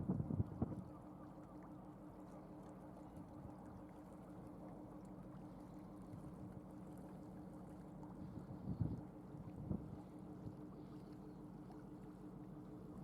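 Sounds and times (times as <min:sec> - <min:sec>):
ship engine low hum: 0:00.0 - 0:13.0.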